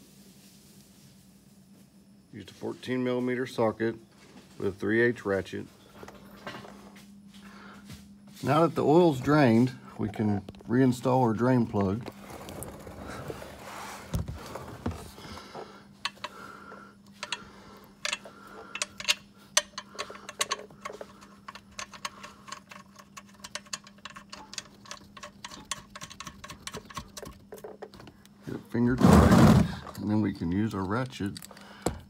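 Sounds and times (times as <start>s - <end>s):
steady low hum: 0.0s - 32.0s
ratchet clicking: 17.1s - 27.4s.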